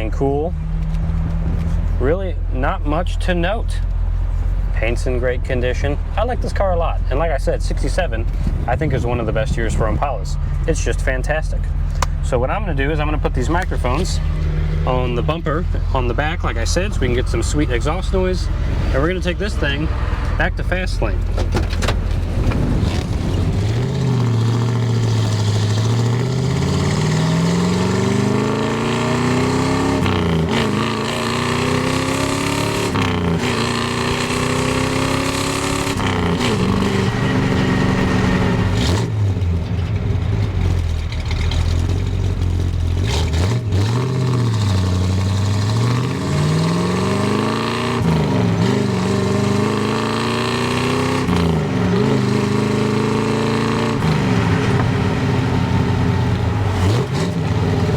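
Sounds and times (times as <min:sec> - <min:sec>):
car exhaust engine note: 0:00.0 - 0:41.1.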